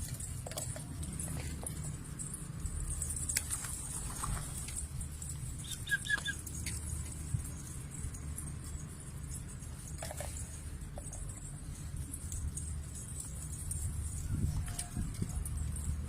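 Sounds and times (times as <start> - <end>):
high bird chirps: 5.6 - 6.4.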